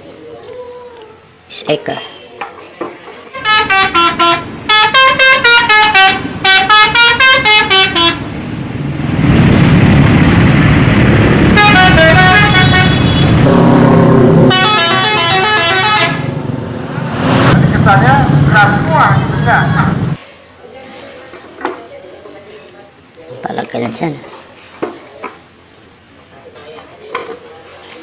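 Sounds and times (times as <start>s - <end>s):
musical bus horn: 3.3s - 8.3s, 11.5s - 13.8s, 14.4s - 16.4s
engine rumble: 3.7s - 20.2s.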